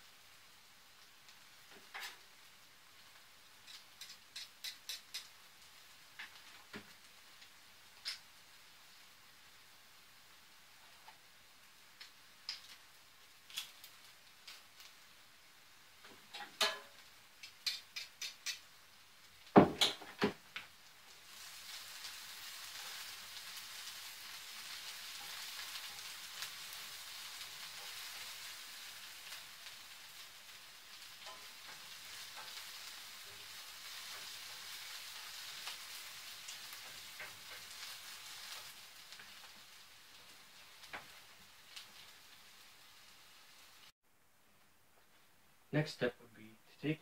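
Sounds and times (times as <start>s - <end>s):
food sizzling in oil: 0.0s - 44.0s.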